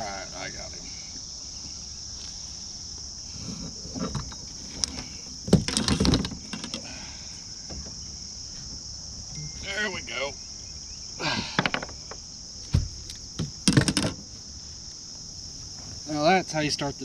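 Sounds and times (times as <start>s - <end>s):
insects droning: 0.0s - 17.0s
knocks and rattles against kayak: 3.4s - 7.0s, 7.6s - 8.9s, 11.5s - 14.3s.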